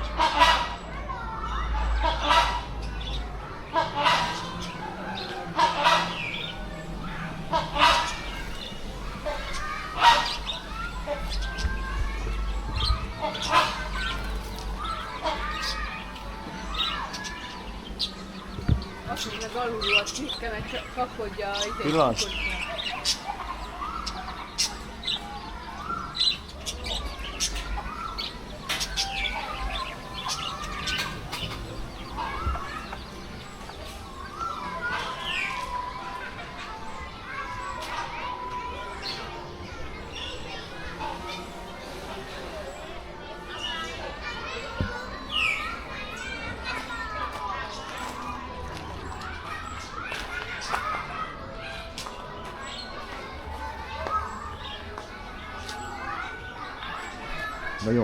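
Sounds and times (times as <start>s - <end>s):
fowl calling: 0.0s - 0.9s, 1.9s - 2.8s, 3.7s - 11.3s, 13.2s - 16.0s
birds chirping and calling: 0.0s - 58.0s.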